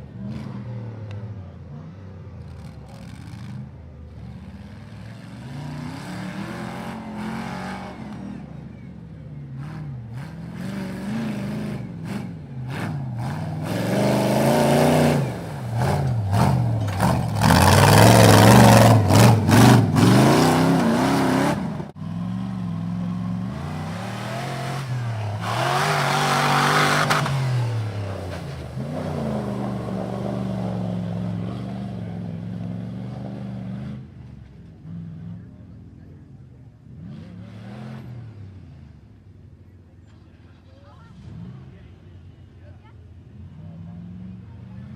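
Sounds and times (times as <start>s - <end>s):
truck engine revving: 0.0s - 36.2s, 36.8s - 39.0s.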